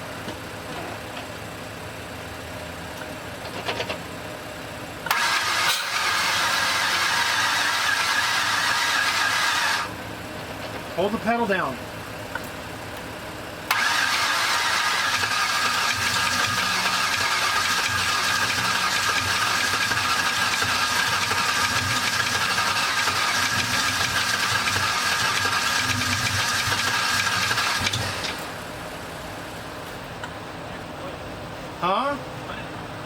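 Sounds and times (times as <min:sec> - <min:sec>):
engine starter cranking: 0:05.0 - 0:09.9, 0:13.7 - 0:28.5.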